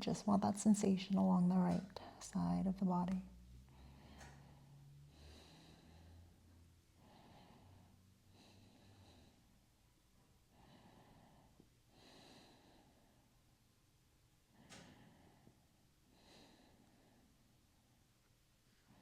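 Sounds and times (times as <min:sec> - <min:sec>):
slow breathing through nose: 0:03.6 - 0:09.7.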